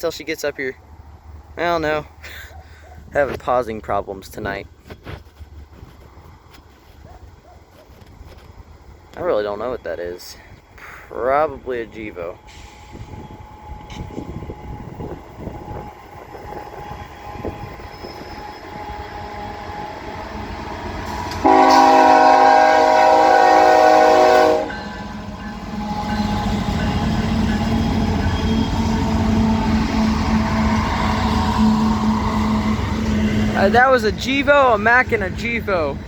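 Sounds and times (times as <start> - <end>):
diesel locomotive engines rumbling: 0.0 - 36.0
train air horn blast: 16.4 - 25.1, 27.8 - 33.5.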